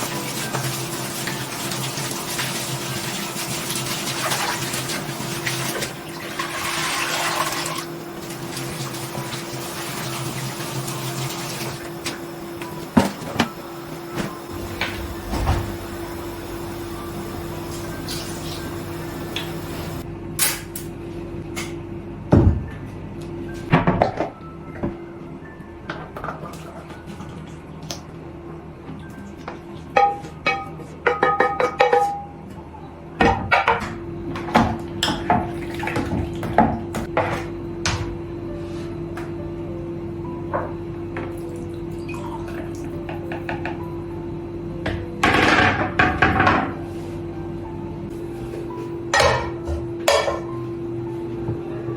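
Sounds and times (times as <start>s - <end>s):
steady low hum: 11.8s - 23.6s.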